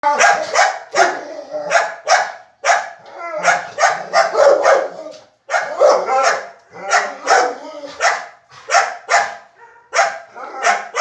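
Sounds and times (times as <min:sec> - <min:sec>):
dog barking: 0:00.0 - 0:11.0
dog whining: 0:03.1 - 0:06.2, 0:06.8 - 0:08.0.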